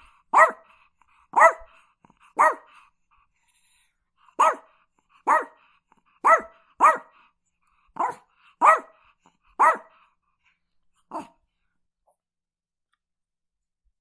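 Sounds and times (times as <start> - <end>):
small dog barking: 0.3 - 0.7, 1.3 - 1.8, 2.4 - 2.8, 4.4 - 5.6, 6.2 - 7.2, 8.0 - 9.0, 9.6 - 10.0, 11.1 - 11.4.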